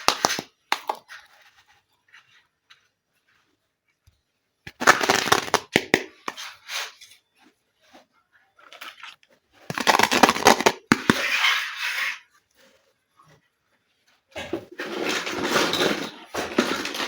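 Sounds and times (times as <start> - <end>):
plastic packaging crinkling: 4.7 - 6.4, 8.7 - 11.2.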